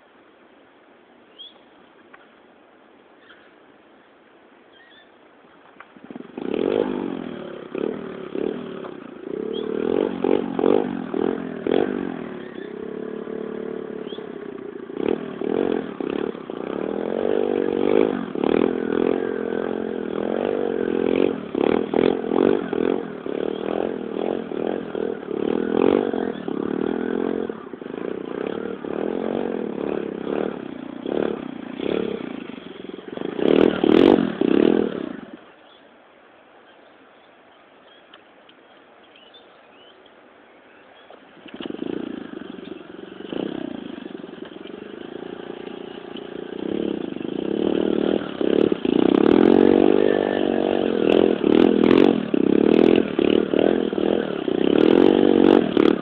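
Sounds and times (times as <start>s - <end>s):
motorbike engine revving: 5.8s - 35.5s, 41.1s - 56.0s.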